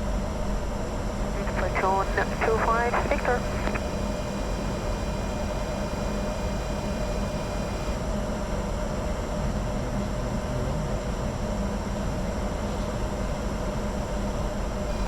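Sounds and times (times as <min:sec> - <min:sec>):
constant low hum: 0:00.0 - 0:15.0
cabin air rush: 0:01.4 - 0:05.8.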